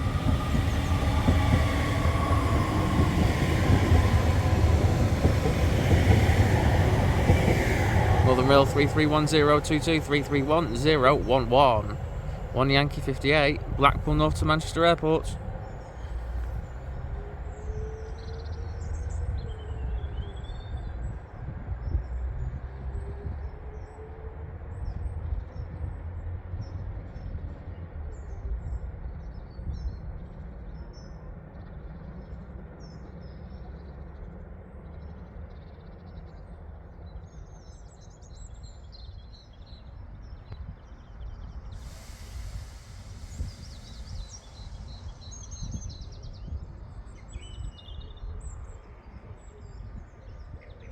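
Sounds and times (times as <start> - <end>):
train motors whining: 0.0 - 17.2
small birds chirping: 0.0 - 17.7, 37.0 - 50.9
electric train rumbling past: 0.0 - 29.1, 41.2 - 50.6
hiss: 41.7 - 46.1.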